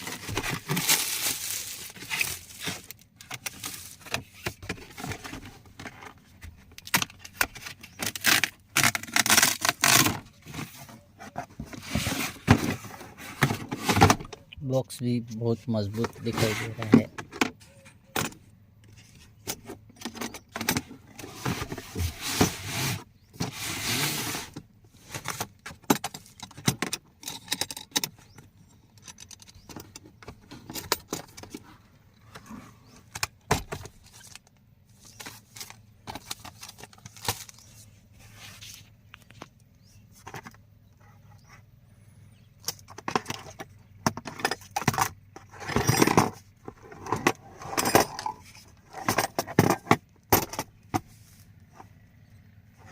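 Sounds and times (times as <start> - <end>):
cardboard packaging rustling: 0.0 - 5.7.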